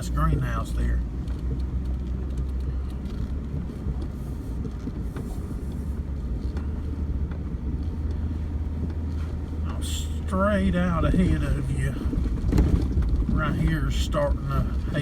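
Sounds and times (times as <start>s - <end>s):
vehicle engine droning: 0.0s - 15.0s
light rattles and knocks: 1.0s - 9.9s, 10.6s - 15.0s.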